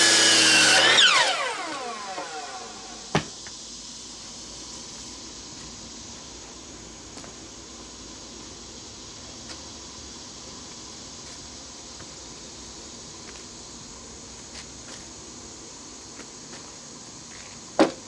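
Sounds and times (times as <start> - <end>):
background hiss: 1.5 - 18.0.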